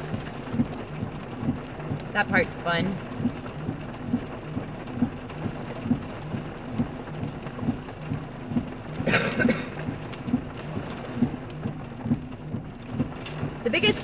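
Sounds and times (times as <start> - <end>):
heavy rain drumming on a car: 0.0 - 14.0
soft low pulse: 2.9 - 8.8.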